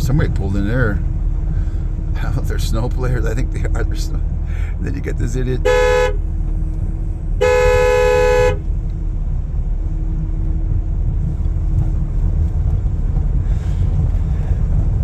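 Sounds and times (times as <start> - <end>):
vehicle driving on snowy road: 0.0 - 15.0
vehicle horn honking: 5.6 - 6.3, 7.4 - 8.7.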